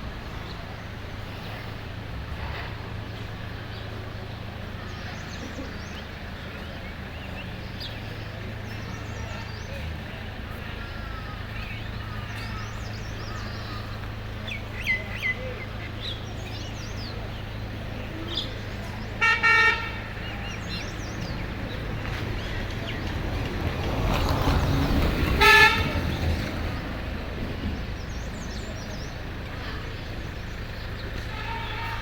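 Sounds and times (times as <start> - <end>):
small birds chirping: 0.0 - 19.2, 19.9 - 32.0
vehicle passing: 0.0 - 32.0
vehicle horn honking: 19.2 - 20.1, 25.3 - 26.2, 31.2 - 32.0.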